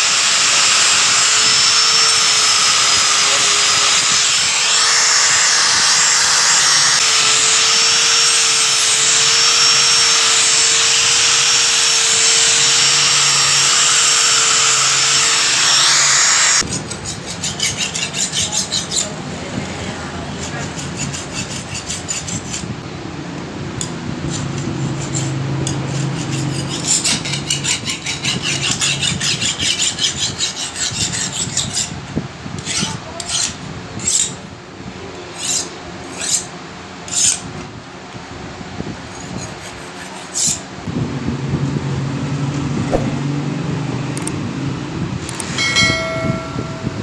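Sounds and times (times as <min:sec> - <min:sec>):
metal scraping knife blade: 0:16.6 - 0:19.1, 0:35.4 - 0:36.5, 0:45.4 - 0:47.0
brief metallic ring: 0:45.5 - 0:47.0.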